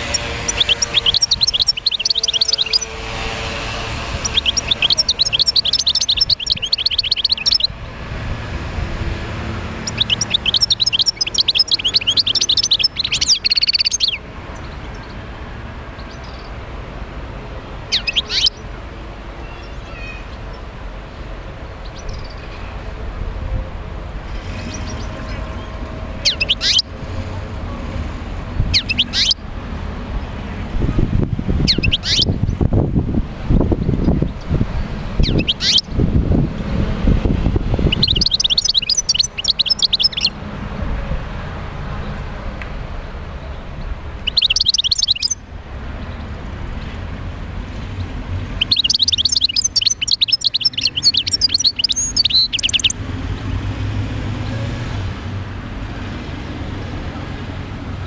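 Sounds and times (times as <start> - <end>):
bird twittering song: 0.0 - 3.0, 4.0 - 7.8, 9.8 - 15.2, 17.9 - 18.7, 21.8 - 22.5, 24.4 - 26.9, 28.7 - 29.4, 31.6 - 32.7, 33.7 - 36.0, 37.7 - 40.4, 43.4 - 45.4, 48.5 - 53.0
sharp down-sweeping bird calls: 0.0 - 7.8, 9.7 - 15.1, 17.9 - 18.7, 24.5 - 26.9, 28.7 - 29.4, 31.6 - 32.4, 35.2 - 36.0, 37.8 - 40.4, 44.2 - 45.4, 48.5 - 53.0.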